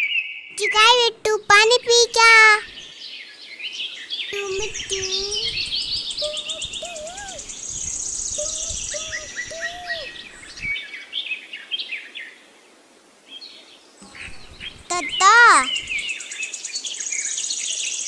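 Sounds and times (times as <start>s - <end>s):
small birds chirping: 0.5s - 10.9s, 14.0s - 18.0s
fast buzzy bird trill: 4.4s - 10.7s, 14.0s - 16.1s.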